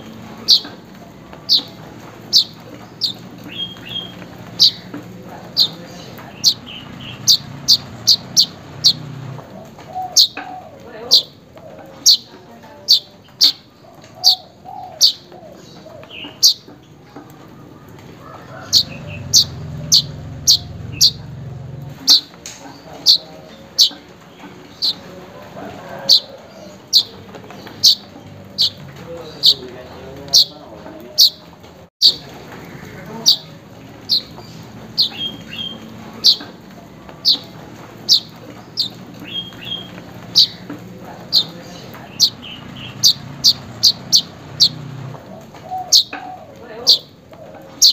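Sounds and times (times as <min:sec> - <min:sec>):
bird chirping: 0:00.0 - 0:25.1, 0:25.9 - 0:47.9.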